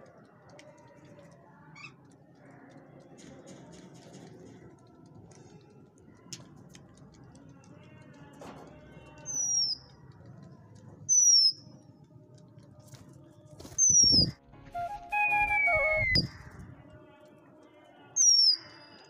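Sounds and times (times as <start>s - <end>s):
high-pitched bird whistles: 9.3s - 9.8s, 13.8s - 16.6s.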